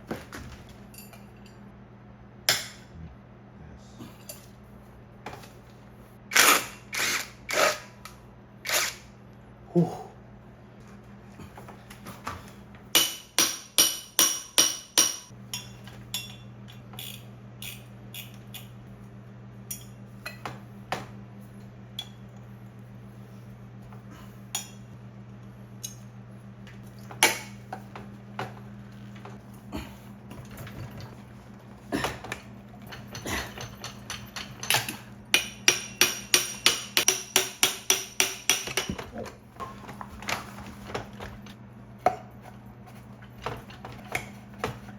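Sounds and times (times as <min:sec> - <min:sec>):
steady low hum: 0:00.0 - 0:44.9
hammer striking metal: 0:13.0 - 0:15.3, 0:35.4 - 0:38.9.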